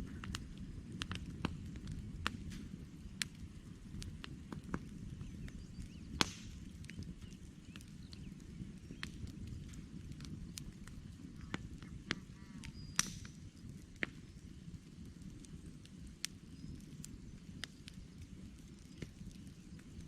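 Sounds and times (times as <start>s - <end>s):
campfire crackling: 0.0s - 20.0s.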